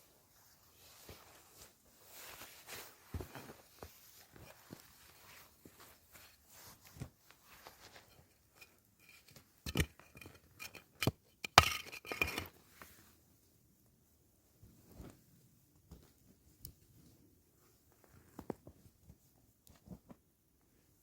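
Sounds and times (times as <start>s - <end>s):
cookware taps and scrapes: 8.1s - 12.5s.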